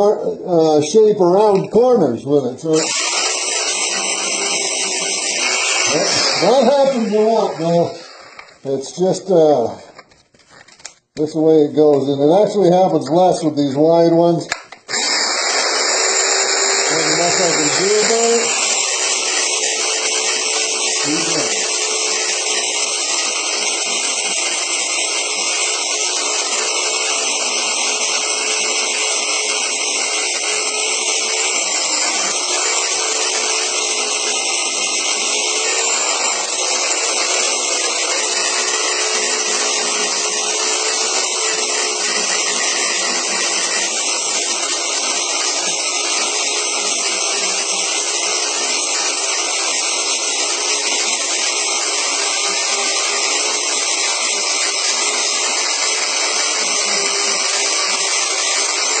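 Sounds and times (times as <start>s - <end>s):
belt sander sanding wood: 2.7s - 8.8s, 14.9s - 48.2s.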